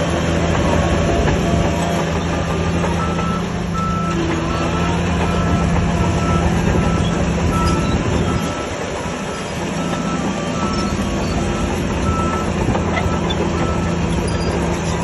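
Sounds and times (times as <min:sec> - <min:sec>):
bulldozer diesel engine running: 0:00.0 - 0:15.0
steel tracks clanking and squealing: 0:00.0 - 0:15.0
reversing alarm beeping: 0:02.9 - 0:14.7.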